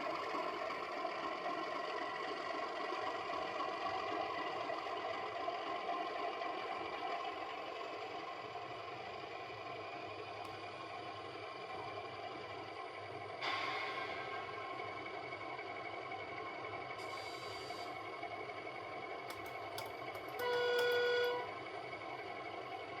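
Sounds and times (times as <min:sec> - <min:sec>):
diesel engine through small speaker: 0:17.0 - 0:23.0.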